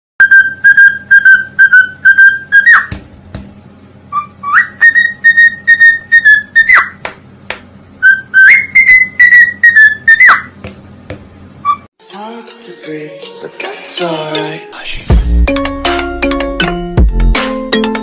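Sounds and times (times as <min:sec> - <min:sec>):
parrot whistling: 0:00.2 - 0:02.9, 0:04.1 - 0:07.0, 0:08.0 - 0:10.6, 0:11.6 - 0:11.9.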